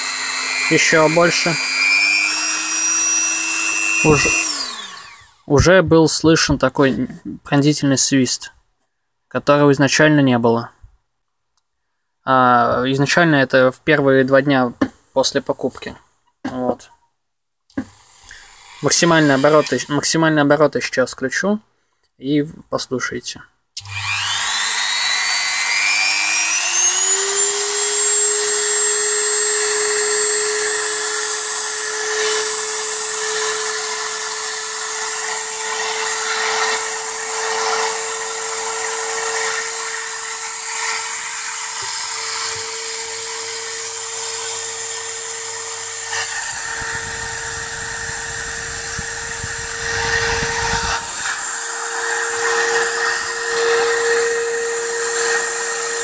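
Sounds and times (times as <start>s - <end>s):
rotary tool motor whining: 0.0s - 5.5s, 18.0s - 19.9s, 23.8s - 56.0s.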